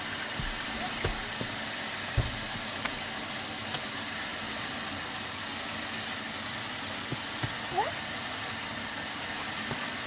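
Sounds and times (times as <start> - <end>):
water pump humming: 0.0 - 10.0
low thump: 2.2 - 3.0.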